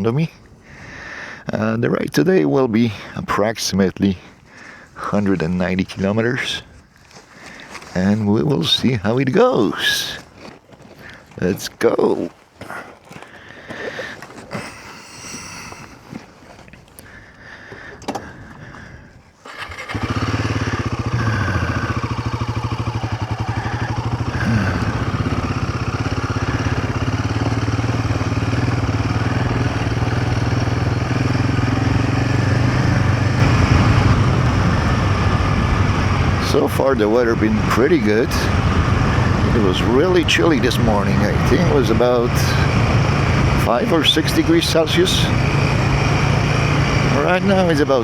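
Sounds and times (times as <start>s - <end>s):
motorcycle engine: 19.4s - 48.0s.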